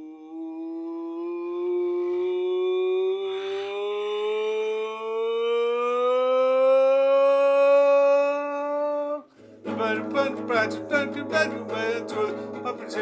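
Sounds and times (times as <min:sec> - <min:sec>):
fast guitar strumming: 0:09.4 - 0:13.0.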